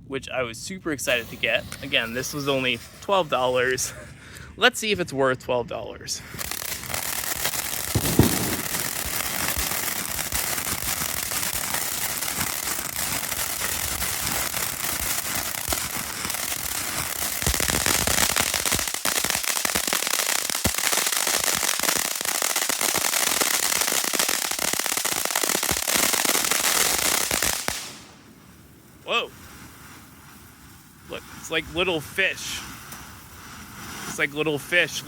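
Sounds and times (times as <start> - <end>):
firework fountain hissing and crackling: 0.6 - 4.2, 6.2 - 35.0
sharp pop: 8.0 - 8.8.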